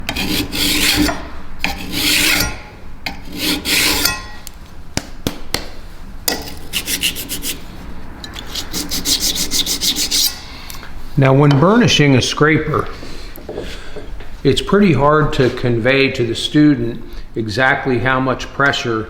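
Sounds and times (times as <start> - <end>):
card scraper rasping on metal: 0.0 - 4.4, 6.3 - 7.6, 8.3 - 10.5.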